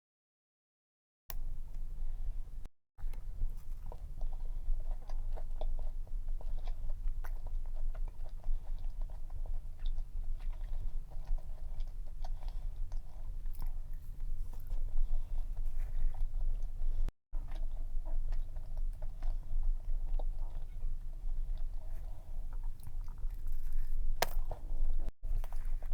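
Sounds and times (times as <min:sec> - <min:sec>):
chewing cookie: 0:03.0 - 0:25.9.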